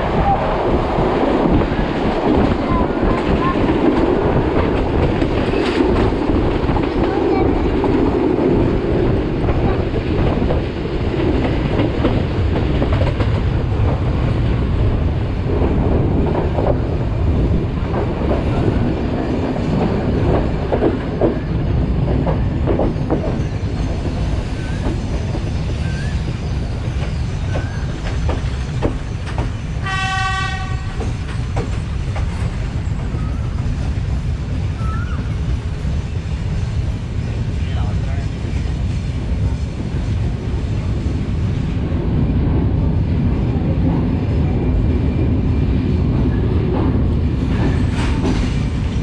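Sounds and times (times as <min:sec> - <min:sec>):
train wheels rumbling: 0:00.0 - 0:49.0
train horn blast: 0:29.8 - 0:31.1.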